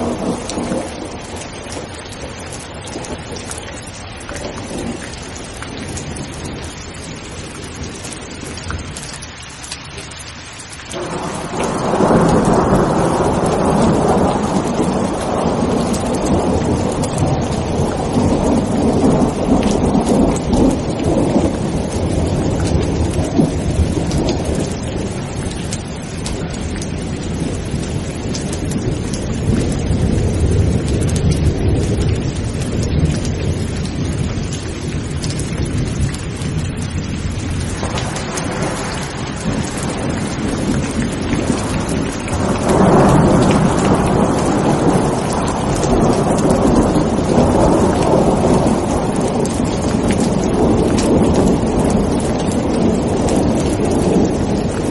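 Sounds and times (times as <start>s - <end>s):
thunder rumbling: 0.0s - 9.8s, 10.9s - 54.9s
heavy rain: 0.0s - 54.9s.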